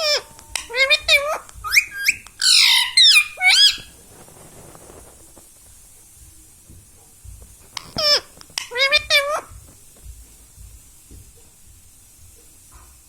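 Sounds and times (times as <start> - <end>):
parakeet squawking: 0.0 - 4.0, 7.8 - 9.6.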